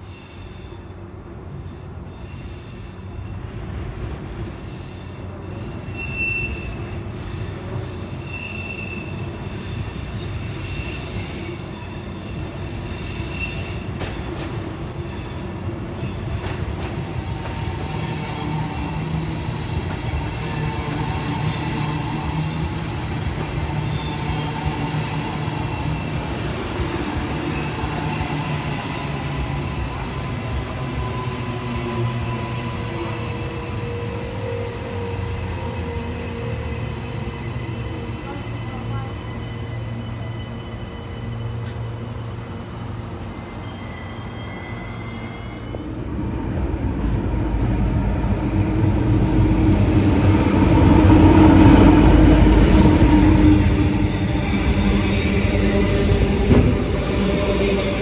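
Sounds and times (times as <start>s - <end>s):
train rumble: 13.6s - 43.6s, 45.0s - 58.0s.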